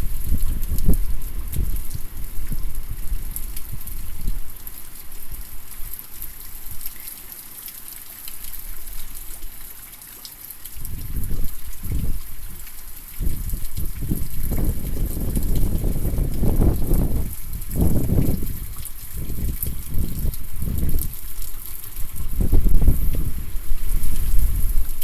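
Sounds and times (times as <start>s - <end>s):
wind gusting against microphone: 0.0s - 4.5s, 10.8s - 12.3s, 13.2s - 25.0s
heavy rain: 0.0s - 25.0s
water drips: 0.1s - 25.0s.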